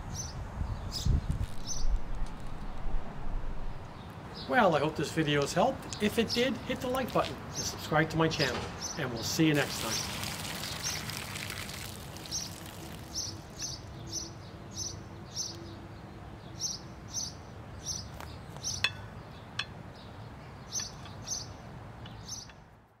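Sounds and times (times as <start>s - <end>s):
small bird chirping: 0.1s - 2.0s, 12.1s - 15.6s, 16.6s - 22.7s
water spilling onto mulch: 6.7s - 7.4s, 9.2s - 14.0s.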